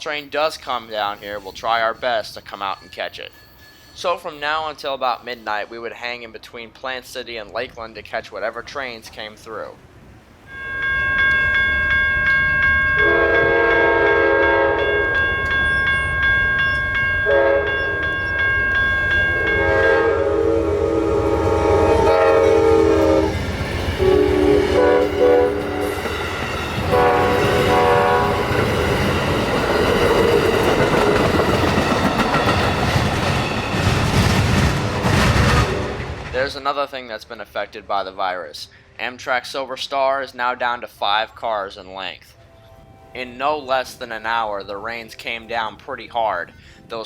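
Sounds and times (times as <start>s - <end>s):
steady high ringing tone: 1.1s - 4.5s, 10.5s - 20.0s
locomotive horn blasts: 12.9s - 15.6s, 17.2s - 18.4s, 19.3s - 26.2s, 26.8s - 29.1s, 35.6s - 36.2s
train wheels clattering on rails: 22.0s - 36.6s.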